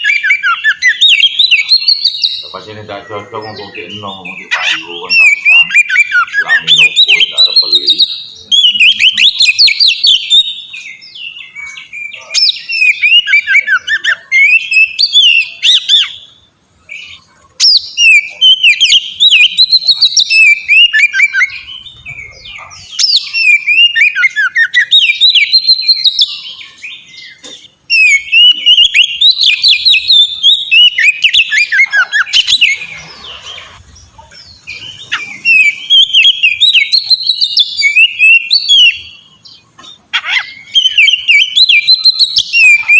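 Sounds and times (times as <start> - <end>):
songbird singing whistles and trills: 0.0 - 42.9.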